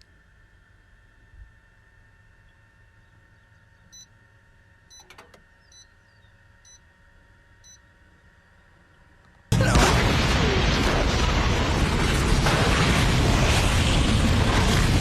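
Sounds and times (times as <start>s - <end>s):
faint steady hum: 0.0s - 11.7s
microwave control panel beeps: 4.9s - 6.0s, 6.6s - 6.8s, 7.6s - 7.8s.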